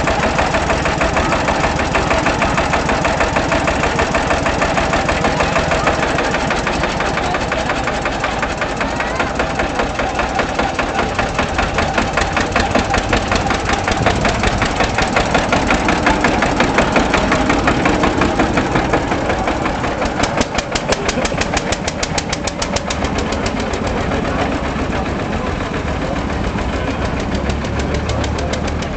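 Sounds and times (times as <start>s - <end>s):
tractor engine knocking: 0.0s - 28.9s.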